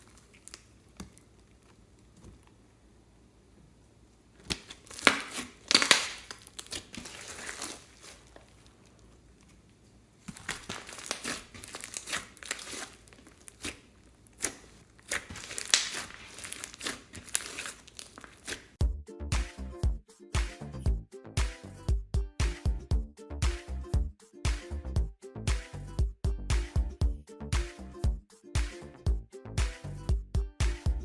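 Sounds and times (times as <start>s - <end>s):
slime crackling and popping: 0.0s - 2.5s, 4.4s - 9.1s, 10.2s - 18.8s.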